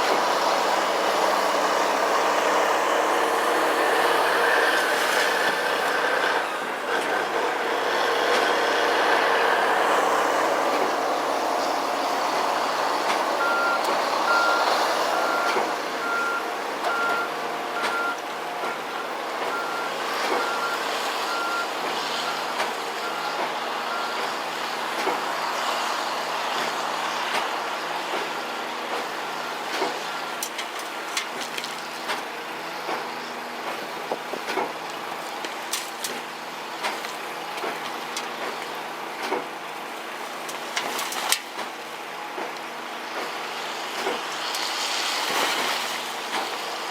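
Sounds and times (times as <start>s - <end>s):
truck engine running: 0.0s - 46.9s
reversing alarm beeping: 13.3s - 24.3s.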